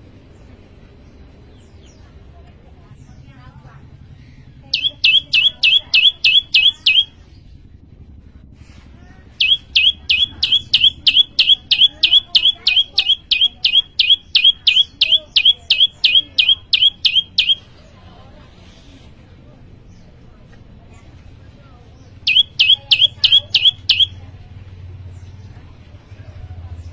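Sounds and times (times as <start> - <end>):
bird singing sharp chip notes: 4.8 - 7.1, 9.4 - 17.6, 22.3 - 24.1.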